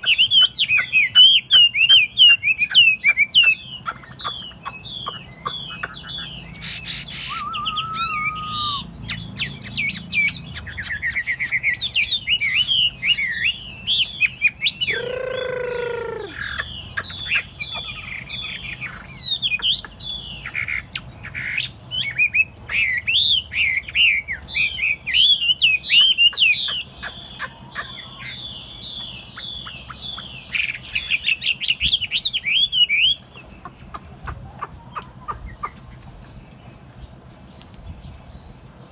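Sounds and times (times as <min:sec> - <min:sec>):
harsh bird call: 0:00.0 - 0:33.2
bird singing whistled phrases: 0:06.6 - 0:16.6.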